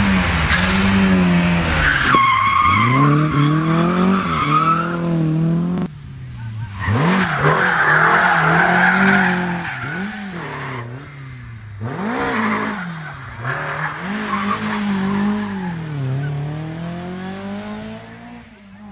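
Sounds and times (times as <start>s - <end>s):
rally car engines revving: 0.0s - 18.9s
tyres squealing and skidding: 0.4s - 5.2s, 6.6s - 16.7s.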